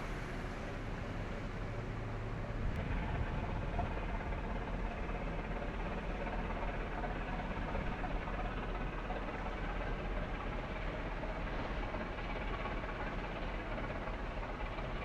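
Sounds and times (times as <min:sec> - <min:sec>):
low hum: 0:00.0 - 0:08.2
mechanical rumble: 0:00.0 - 0:15.0.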